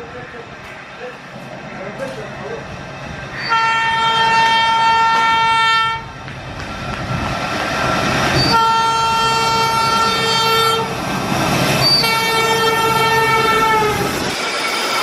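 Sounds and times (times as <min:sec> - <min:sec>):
train rumbling past: 0:00.0 - 0:15.0
locomotive horn blasts: 0:03.4 - 0:06.1, 0:08.4 - 0:10.9, 0:11.9 - 0:14.1.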